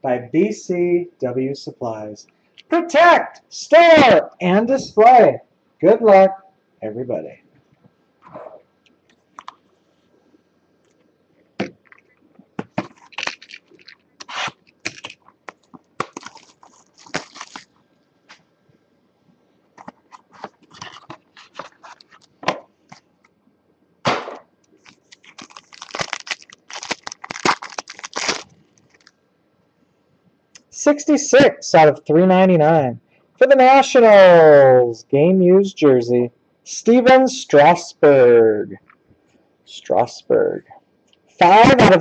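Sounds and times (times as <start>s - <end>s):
crinkling plastic wrap: 12.7s - 18.4s, 19.8s - 22.4s, 24.8s - 29.2s
scraping cardboard: 19.8s - 22.2s.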